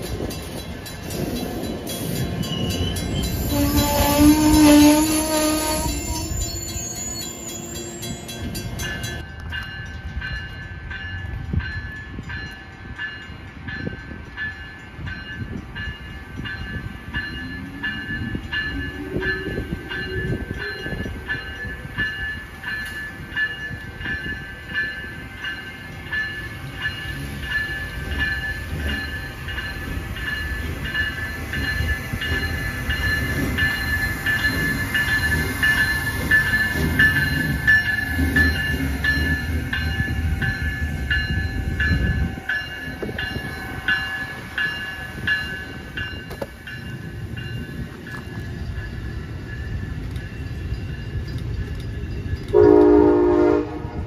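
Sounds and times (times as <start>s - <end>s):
low rumble of train: 0.0s - 54.0s
train wheels clicking over rail joints: 13.7s - 53.0s.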